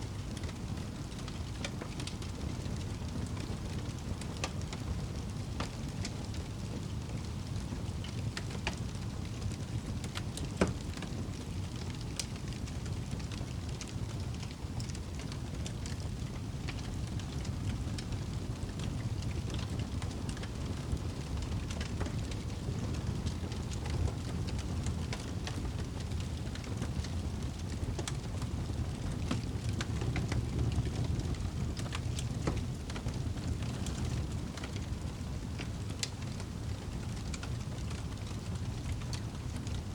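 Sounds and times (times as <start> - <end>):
campfire crackling: 0.3 - 39.8
burning wood popping: 15.6 - 39.7.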